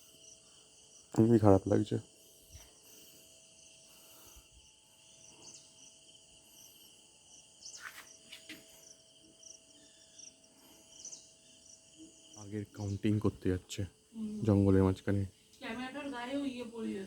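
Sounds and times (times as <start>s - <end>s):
insects chirring: 0.0s - 17.0s
bird chirps: 7.6s - 13.3s.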